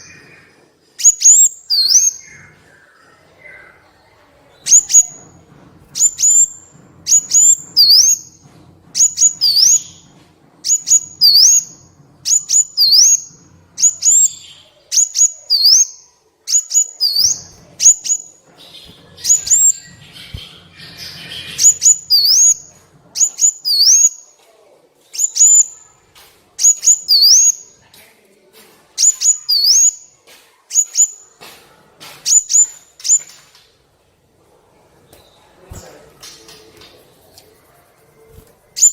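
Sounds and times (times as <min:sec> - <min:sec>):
sunbird high chirps: 0:01.0 - 0:03.7, 0:10.7 - 0:24.2, 0:26.6 - 0:27.8.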